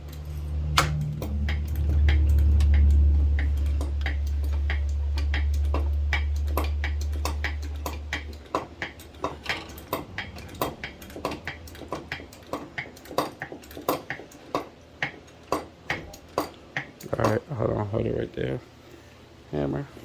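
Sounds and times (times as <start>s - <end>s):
low hum: 0.0s - 13.4s
sharp mechanical clicking: 0.0s - 17.4s.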